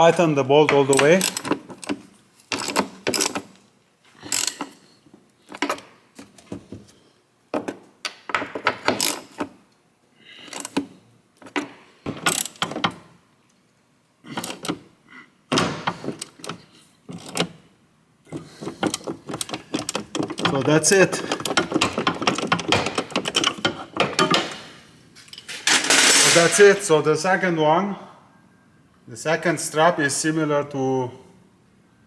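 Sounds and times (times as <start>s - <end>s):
wrench clicking and rattling: 8.3s - 9.4s, 12.1s - 12.9s, 18.6s - 24.7s.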